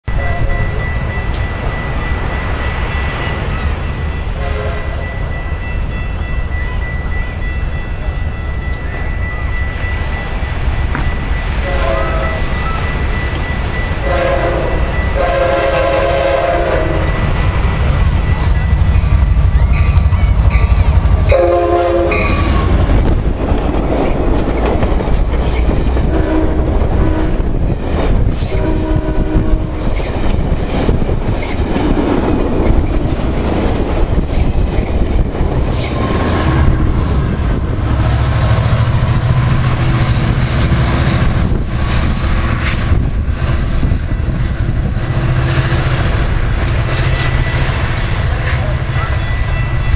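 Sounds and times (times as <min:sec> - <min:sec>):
train rail rumble and wheel clatter: 0:00.0 - 0:49.9
train horn chord: 0:00.1 - 0:01.4, 0:04.3 - 0:05.2, 0:11.5 - 0:12.8, 0:14.0 - 0:17.4, 0:19.8 - 0:22.8, 0:26.0 - 0:27.4, 0:28.5 - 0:29.9.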